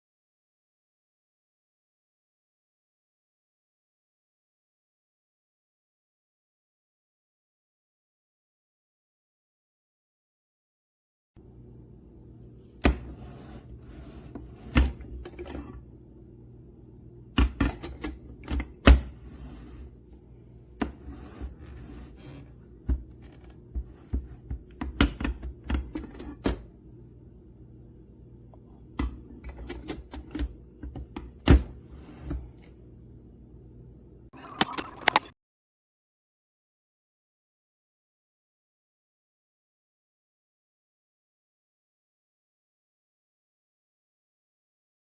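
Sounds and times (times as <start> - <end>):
coffee maker humming: 11.4 - 32.8, 34.4 - 35.3
coffee maker popping and sputtering: 34.4 - 35.3.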